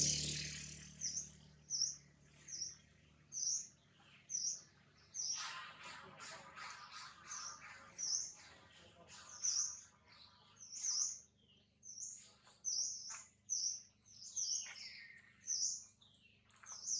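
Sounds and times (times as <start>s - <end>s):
small birds chirping: 0.0s - 16.9s.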